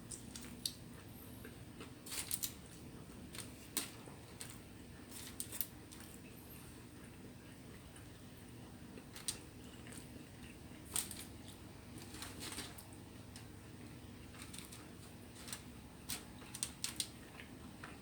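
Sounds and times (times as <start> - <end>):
low room hum: 0.0 - 18.0
person chewing: 8.9 - 11.7, 16.3 - 18.0.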